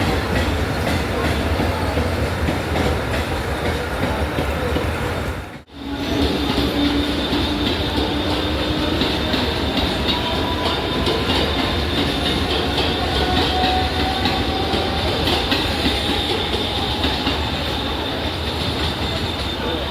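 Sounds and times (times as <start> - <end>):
train wheels clattering on track: 0.0 - 19.9.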